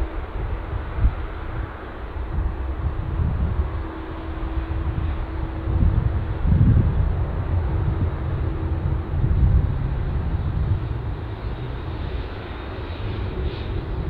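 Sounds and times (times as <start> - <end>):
airliner engines rumbling: 0.0 - 14.0.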